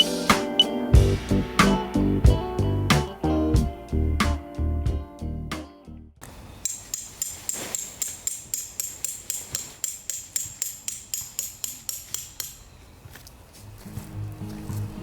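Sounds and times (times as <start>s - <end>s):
hammer striking metal tent peg: 6.6s - 12.6s.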